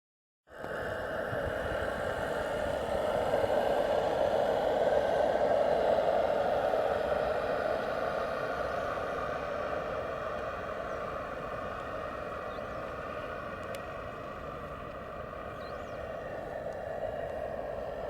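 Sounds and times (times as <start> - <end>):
model steam engine hissing: 1.1 - 13.4.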